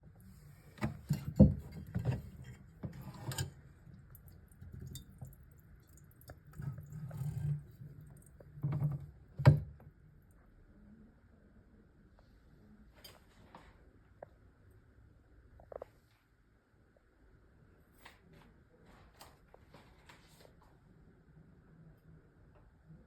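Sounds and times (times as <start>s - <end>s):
quiet knocks and crackles: 0.7s - 10.0s
boiling eggs popping: 4.1s - 7.0s.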